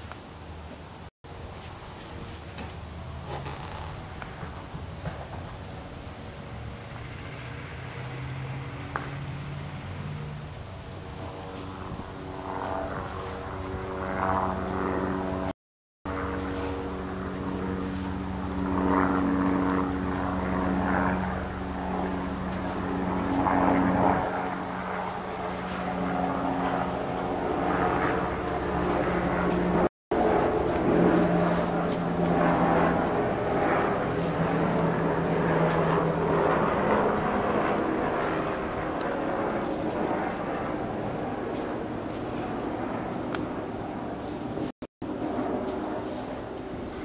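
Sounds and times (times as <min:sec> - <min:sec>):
propeller aircraft engines droning: 0:00.0 - 0:47.0.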